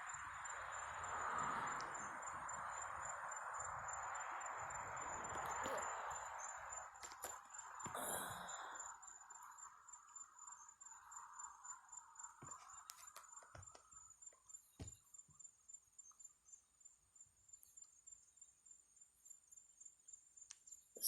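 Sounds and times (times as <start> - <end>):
faint hum: 0.0 - 14.1
crickets chirping: 0.0 - 21.0.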